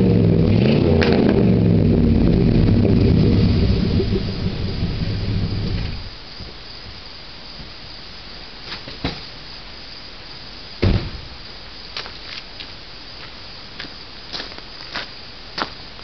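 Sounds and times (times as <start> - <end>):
engine exhaust running: 0.0 - 6.2
faint steady hiss: 2.4 - 16.0
loud thump: 10.8 - 11.4.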